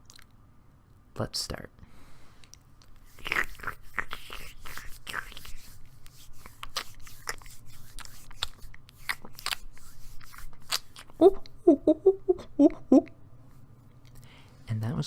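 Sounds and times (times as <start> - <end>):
wet smacking and squelching: 2.8 - 11.6.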